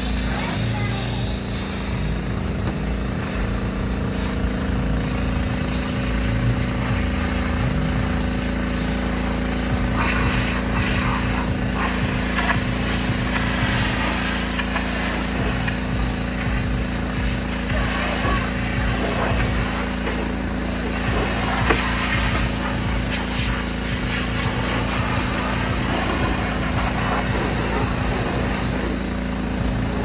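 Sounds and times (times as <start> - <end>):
engine running: 0.0 - 30.0
short bursts of hissing: 9.0 - 29.6.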